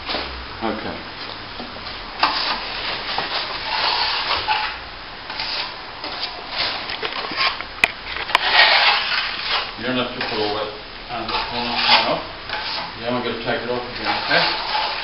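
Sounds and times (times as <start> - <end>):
trowel scraping plaster: 2.2 - 7.6, 8.2 - 13.0, 13.6 - 15.0.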